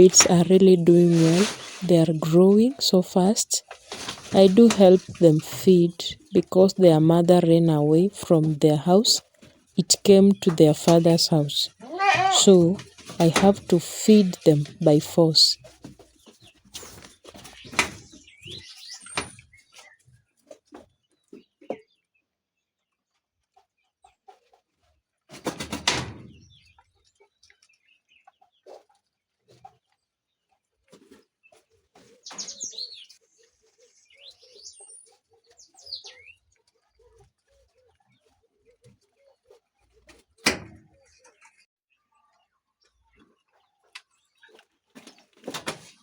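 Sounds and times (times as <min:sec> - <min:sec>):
chickens clucking: 0:00.0 - 0:17.9
small birds chirping: 0:00.0 - 0:24.6, 0:26.3 - 0:40.2.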